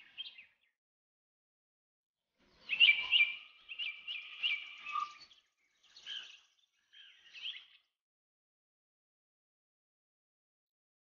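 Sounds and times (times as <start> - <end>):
bird chirping: 2.5 - 7.9.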